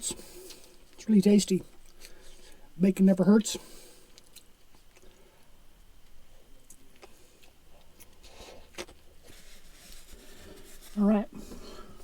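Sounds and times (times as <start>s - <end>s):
person chewing food: 3.8s - 10.8s.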